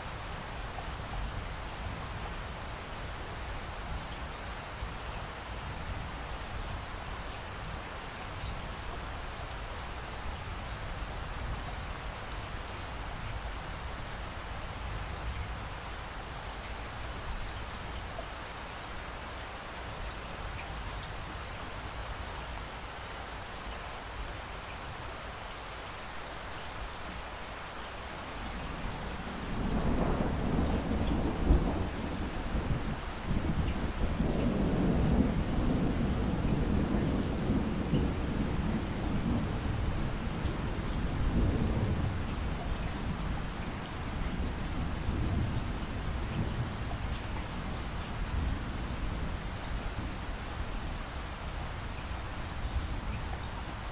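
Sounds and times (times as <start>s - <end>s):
steady rain falling: 0.0s - 53.9s
thunder rumbling: 29.1s - 50.3s.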